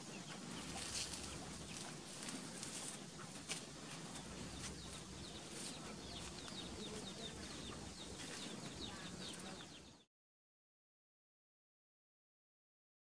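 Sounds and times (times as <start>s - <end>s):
low steady hum: 0.0s - 10.0s
bird chirps: 2.8s - 10.1s.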